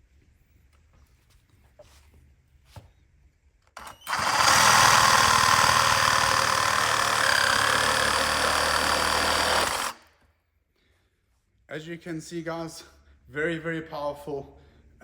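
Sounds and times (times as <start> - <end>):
reciprocating saw cutting wood: 3.8 - 10.0.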